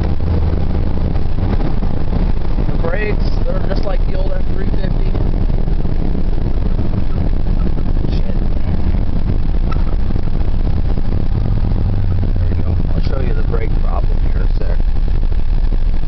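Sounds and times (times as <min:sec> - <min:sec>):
pickup engine running: 0:00.0 - 0:16.0
road noise: 0:00.0 - 0:16.0.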